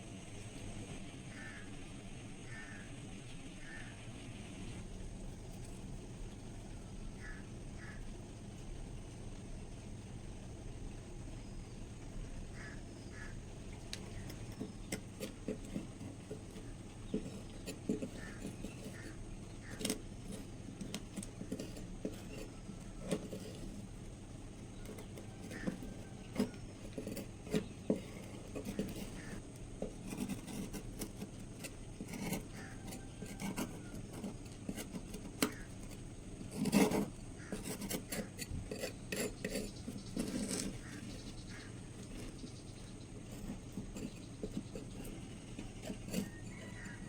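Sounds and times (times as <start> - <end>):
scraping a rusted knife: 12.6 - 47.0.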